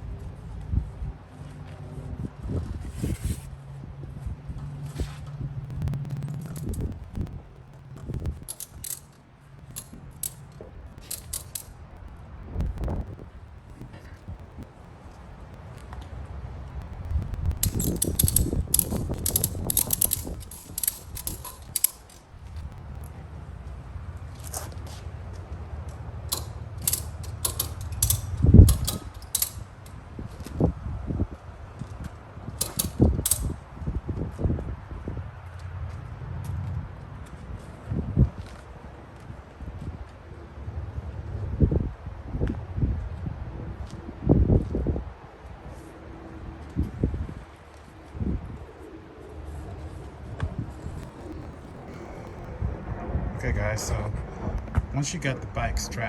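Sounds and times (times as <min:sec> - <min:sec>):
metal strap hardware rattling: 0:05.7 - 0:15.8, 0:16.8 - 0:23.1, 0:26.3 - 0:30.0, 0:32.6 - 0:33.5, 0:50.9 - 0:52.5.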